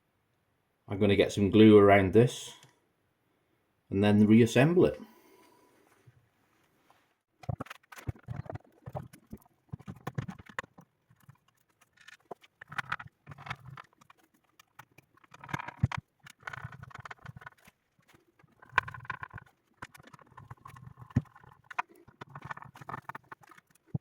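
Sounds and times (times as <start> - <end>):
parts clicking and rattling: 7.4 - 24.0.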